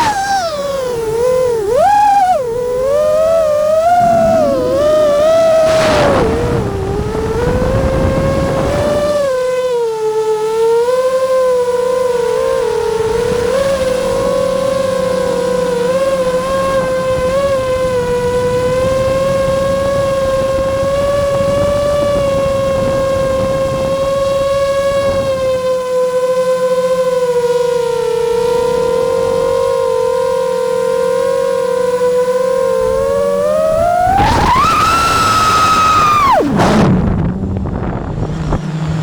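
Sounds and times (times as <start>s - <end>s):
drone motors whining: 0.0s - 39.0s
rushing air: 3.7s - 8.5s.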